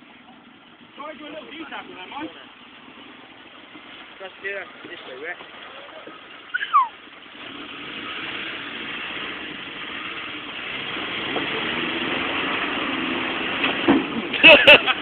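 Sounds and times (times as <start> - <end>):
truck engine revving under load: 5.4 - 15.0
high squeal falling in pitch: 6.5 - 7.0.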